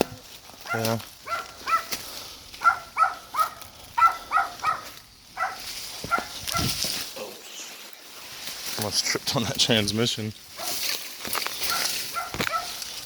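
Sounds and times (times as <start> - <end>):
dog yapping: 0.0 - 1.9, 2.6 - 6.8, 11.7 - 12.8.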